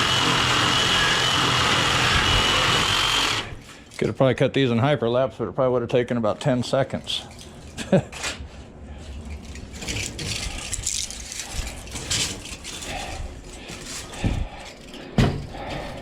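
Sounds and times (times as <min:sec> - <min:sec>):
metal parts rattling and scraping: 0:07.1 - 0:16.0.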